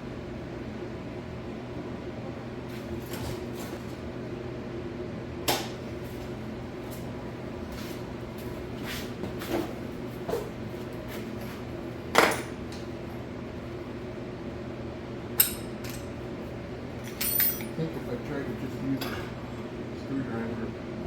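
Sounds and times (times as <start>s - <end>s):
steady hum: 4.2s - 21.0s
hand tools clanking on metal: 17.0s - 17.8s.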